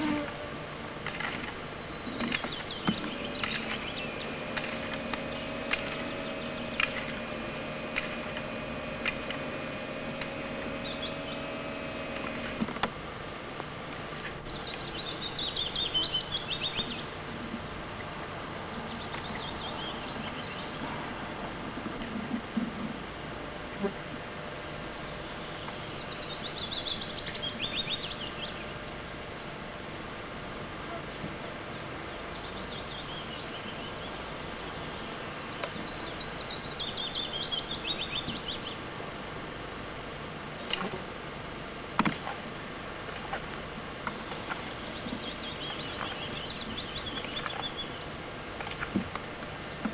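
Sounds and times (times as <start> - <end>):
outdoor background hiss: 0.0 - 49.9
songbird chirping: 1.2 - 12.6, 14.2 - 17.2, 17.8 - 21.5, 24.2 - 40.9, 44.0 - 49.0.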